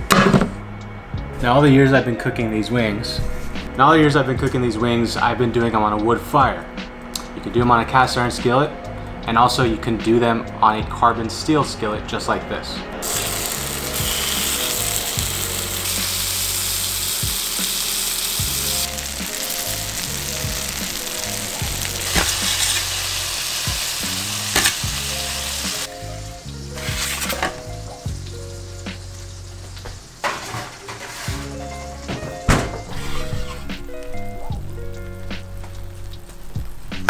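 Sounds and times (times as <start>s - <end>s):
chicken wings sizzling in skillet: 13.0s - 32.2s.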